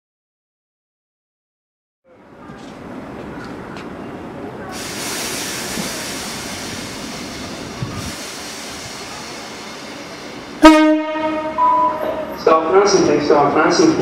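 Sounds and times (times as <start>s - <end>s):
train running noise: 2.1s - 14.0s
strong hiss: 4.7s - 10.6s.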